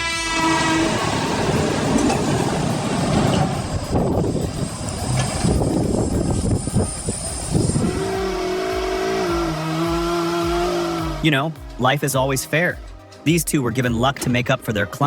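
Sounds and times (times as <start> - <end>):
heavy vehicle engine running: 0.3 - 11.2.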